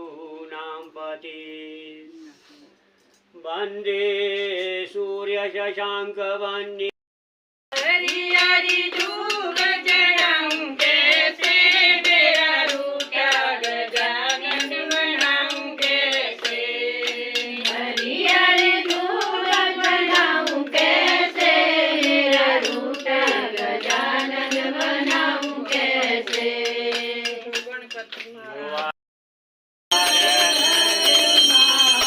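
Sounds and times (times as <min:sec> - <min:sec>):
hand claps: 0:07.7 - 0:29.0, 0:30.0 - 0:32.0
women singing a hymn: 0:07.8 - 0:27.6.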